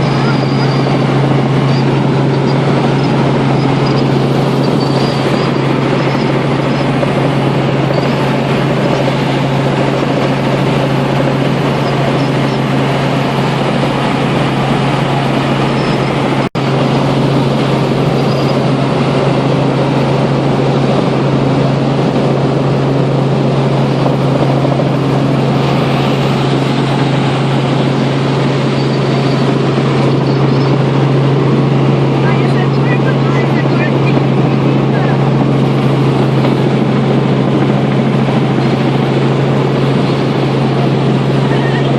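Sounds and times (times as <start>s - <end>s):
helicopter engine and rotor: 0.0s - 41.9s.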